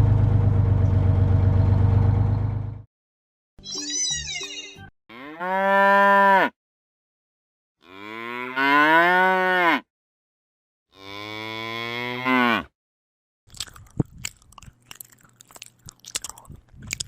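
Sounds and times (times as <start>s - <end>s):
high-pitched warbling sound: 3.6s - 4.9s
cow mooing: 5.1s - 6.6s, 7.8s - 9.8s, 10.9s - 12.7s.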